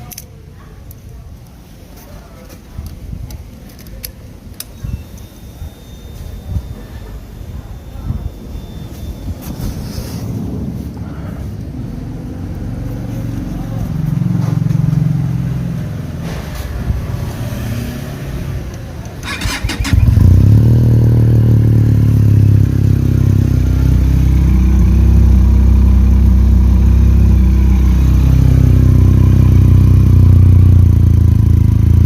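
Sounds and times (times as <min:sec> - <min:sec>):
motorcycle engine idling: 0:18.9 - 0:32.0
starter motor cranking: 0:19.2 - 0:20.6.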